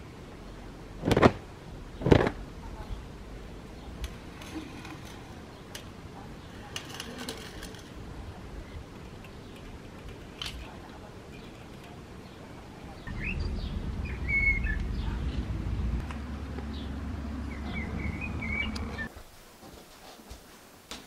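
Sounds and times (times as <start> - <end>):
low outdoor rumble: 0.0 - 19.1
small birds chirping and trilling: 11.3 - 16.0, 16.6 - 19.1.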